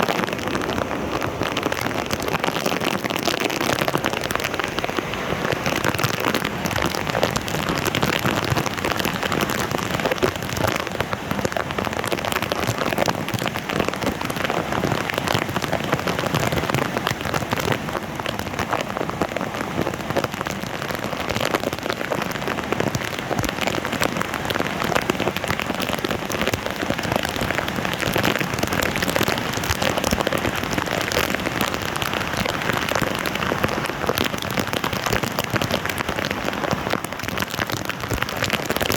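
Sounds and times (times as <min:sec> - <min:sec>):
water splashing on flooded street: 0:00.0 - 0:38.9.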